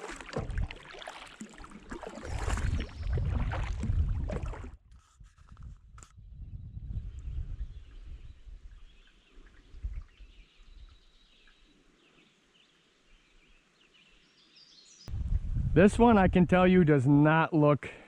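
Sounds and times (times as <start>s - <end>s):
low rumble: 15.1s - 16.7s.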